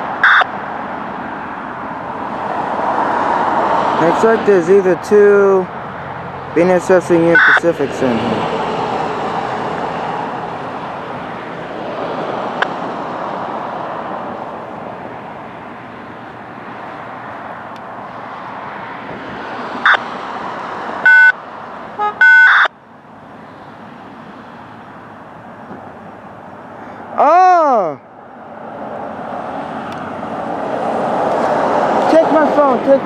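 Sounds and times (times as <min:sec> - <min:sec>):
loud high-pitched tones: 0:07.3 - 0:07.7.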